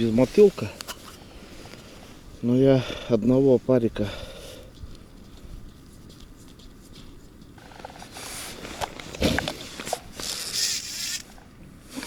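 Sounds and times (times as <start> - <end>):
handling noise rustling: 4.7 - 11.5.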